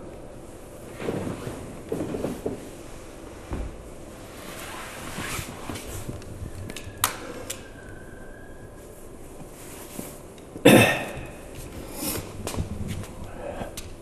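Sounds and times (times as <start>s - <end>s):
man coughing: 10.6s - 11.4s.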